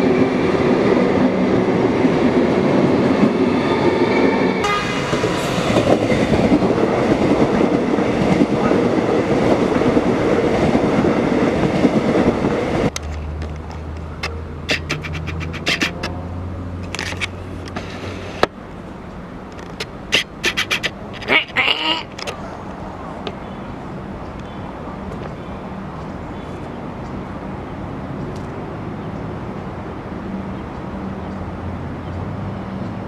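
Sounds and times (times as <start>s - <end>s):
electric train on track: 0.0s - 33.0s.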